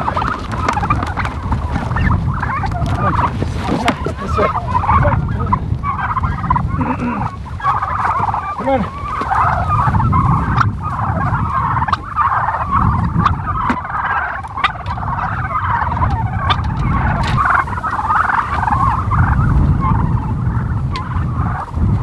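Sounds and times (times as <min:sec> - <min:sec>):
turkeys calling: 0:00.0 - 0:22.0
low rumbling noise: 0:12.5 - 0:22.0.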